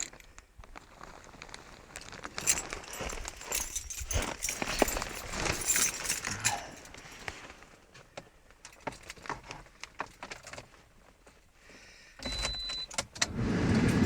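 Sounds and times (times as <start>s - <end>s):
car keys jangling: 0.0s - 0.3s, 2.4s - 7.3s, 8.7s - 10.7s, 13.8s - 14.0s
rustling handling noise: 0.0s - 11.6s
car engine starting: 13.1s - 14.0s.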